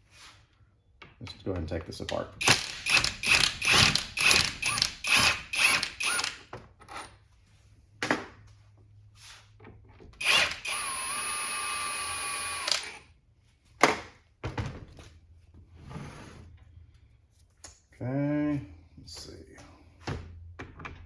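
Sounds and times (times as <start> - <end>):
impact wrench whine: 2.4 - 6.4, 10.2 - 13.1.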